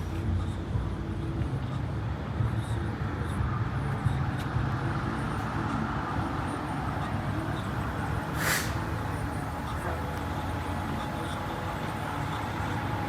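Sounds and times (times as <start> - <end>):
rumble of road vehicles: 0.0 - 13.0
short burst of hiss: 8.4 - 8.8.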